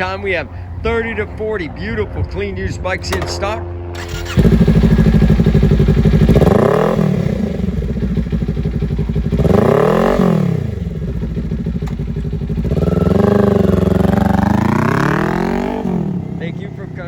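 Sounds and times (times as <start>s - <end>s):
motorcycle engine revving: 3.1s - 17.0s.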